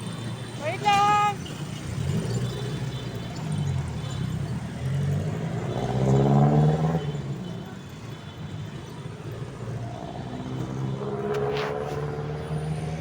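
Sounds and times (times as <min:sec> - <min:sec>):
vehicle engine accelerating: 0:00.0 - 0:13.0.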